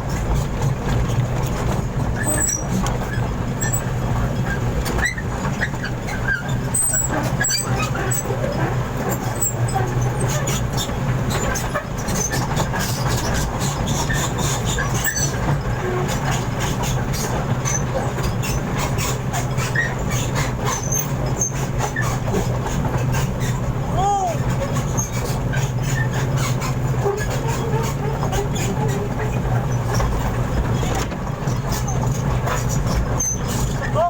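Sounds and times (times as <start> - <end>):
truck engine running: 0.0 - 34.0
knocks and clatter: 24.4 - 34.0.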